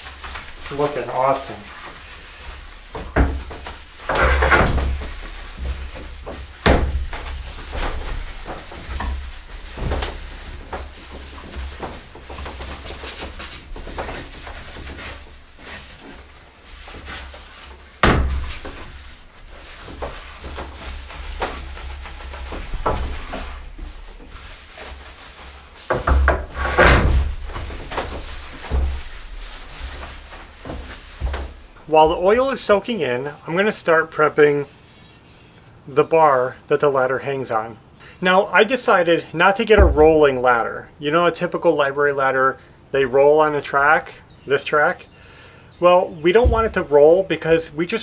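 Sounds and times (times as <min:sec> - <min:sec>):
cloth rubbing on wood: 0:00.0 - 0:35.5, 0:45.8 - 0:48.0
sharp knocks: 0:00.2 - 0:16.2, 0:17.9 - 0:24.9, 0:25.9 - 0:32.4, 0:46.4 - 0:47.2.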